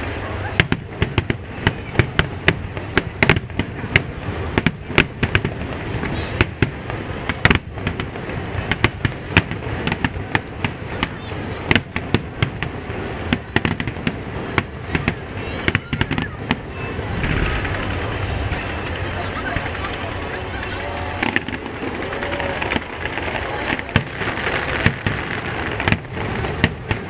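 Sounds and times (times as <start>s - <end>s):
continuous background noise: 0.0s - 27.0s
firework shells bursting: 13.4s - 26.9s.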